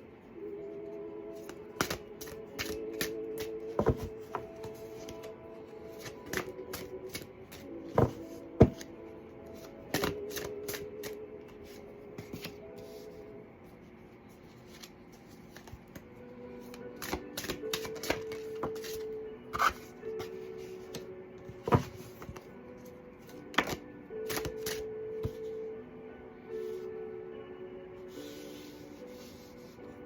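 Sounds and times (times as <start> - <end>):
soft background music: 0.0 - 30.0
cards shuffled and slapped down: 1.7 - 5.3, 6.0 - 8.9, 9.9 - 11.2, 17.0 - 19.0, 23.5 - 25.4.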